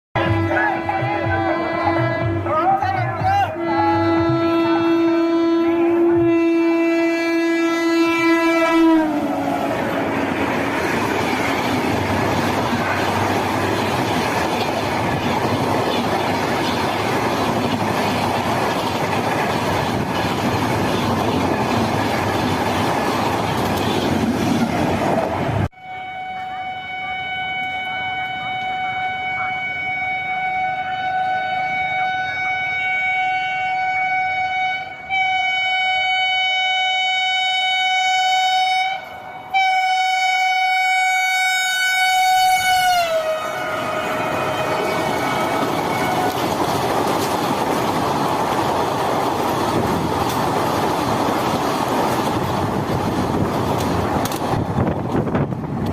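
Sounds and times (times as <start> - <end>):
train horn blaring: 0.2 - 10.4, 25.7 - 46.9
train rushing and clattering: 0.2 - 25.8, 40.9 - 55.9.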